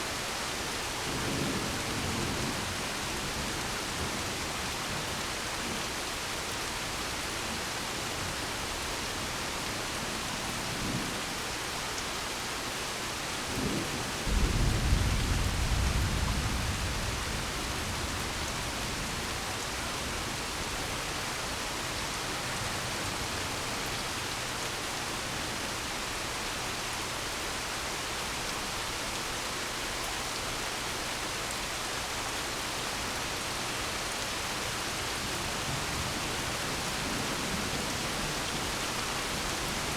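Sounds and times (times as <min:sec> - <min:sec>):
rain hiss: 0:00.0 - 0:39.9
faint low thunder rumble: 0:13.8 - 0:20.3.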